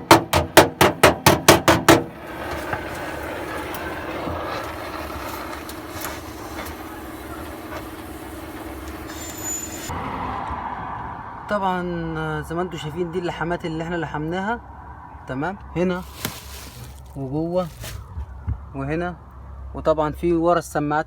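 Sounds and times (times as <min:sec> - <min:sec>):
hammer blows on sheet metal: 0:00.0 - 0:02.2
steady mechanical hum: 0:00.0 - 0:09.9.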